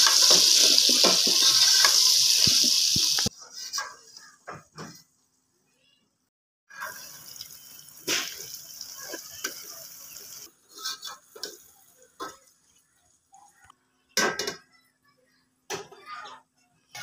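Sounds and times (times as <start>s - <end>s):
potatoes sizzling in a pot: 0.0s - 3.3s, 6.7s - 12.7s.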